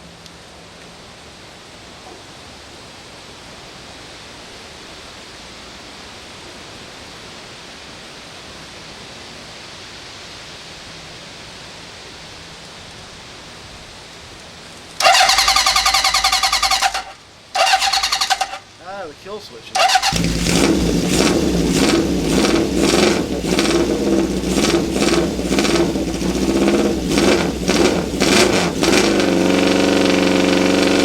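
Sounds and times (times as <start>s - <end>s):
steady background hiss: 0.0s - 26.3s
motorcycle electric starter cranking: 15.0s - 18.7s, 19.7s - 31.0s.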